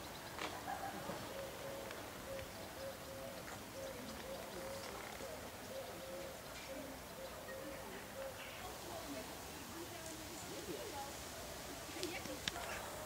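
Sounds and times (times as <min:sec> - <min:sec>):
small birds chirping: 0:00.0 - 0:13.0
low cooing bird: 0:00.5 - 0:08.7.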